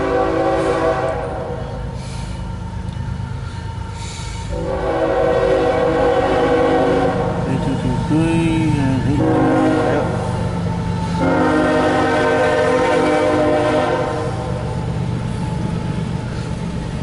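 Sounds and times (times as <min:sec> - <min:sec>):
locomotive air horn blasts: 0:00.0 - 0:01.6, 0:04.5 - 0:08.1, 0:09.1 - 0:10.4, 0:11.2 - 0:14.6
diesel locomotive rumble: 0:00.0 - 0:17.0.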